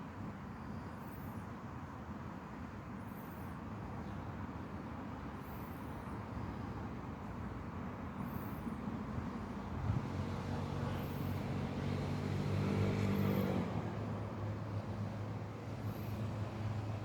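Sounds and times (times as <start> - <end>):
distant road traffic rumble: 6.5 - 17.0.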